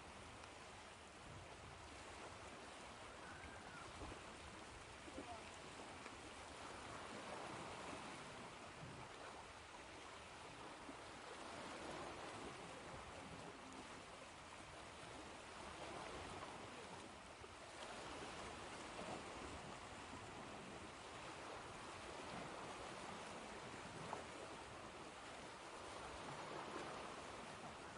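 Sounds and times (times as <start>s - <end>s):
ocean surf washing on shore: 0.0s - 27.9s.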